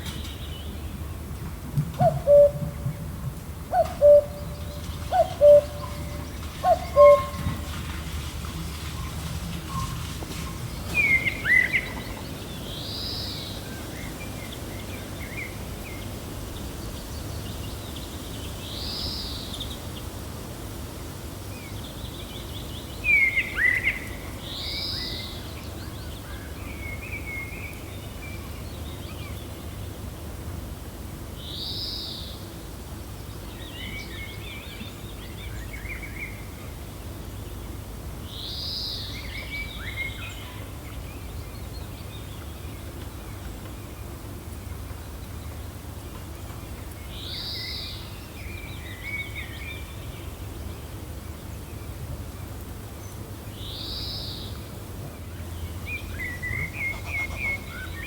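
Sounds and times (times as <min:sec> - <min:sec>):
low wind noise: 0:00.0 - 0:23.2.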